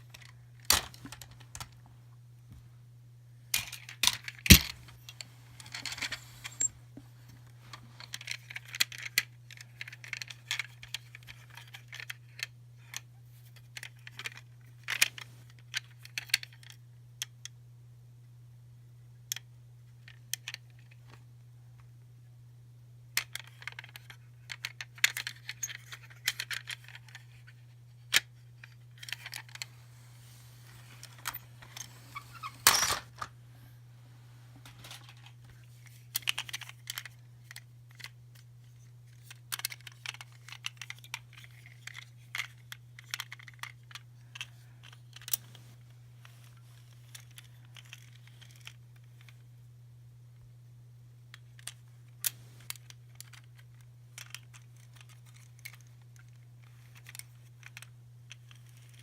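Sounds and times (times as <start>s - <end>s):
steady low hum: 0.0s - 11.6s, 23.9s - 59.0s
plastic toys clicking and tapping: 8.1s - 13.0s, 23.2s - 27.3s, 35.8s - 38.4s, 39.1s - 45.4s, 51.3s - 59.0s.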